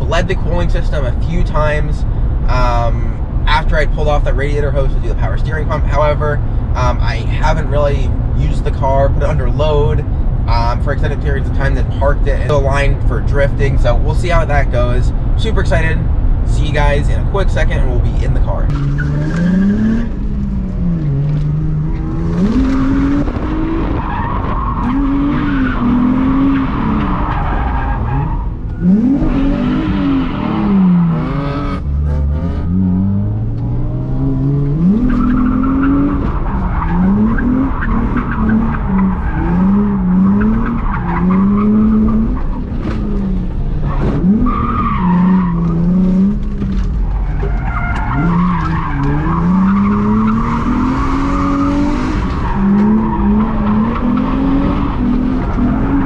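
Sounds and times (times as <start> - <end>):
car engine revving: 15.7 - 56.0
tyre squeal: 34.9 - 56.0.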